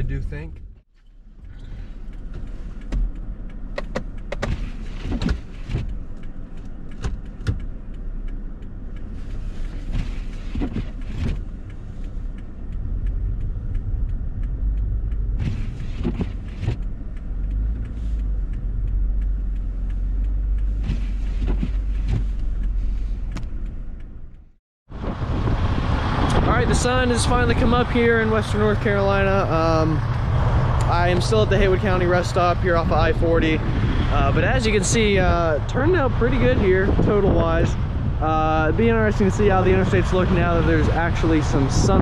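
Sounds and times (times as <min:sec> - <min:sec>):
engine and tyres rumbling: 0:00.0 - 0:42.0
sharp knocks and clicks: 0:01.4 - 0:24.5.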